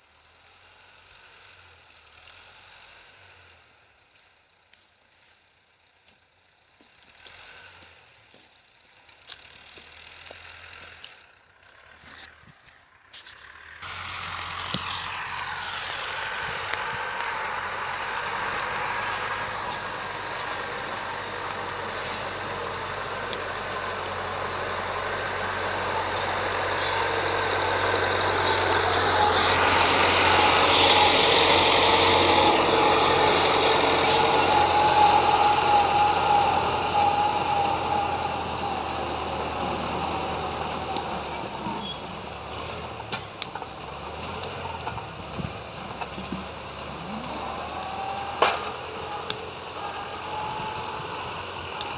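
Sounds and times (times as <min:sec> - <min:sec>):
tractor diesel engine running: 0:06.4 - 0:51.9
whine: 0:13.1 - 0:42.2.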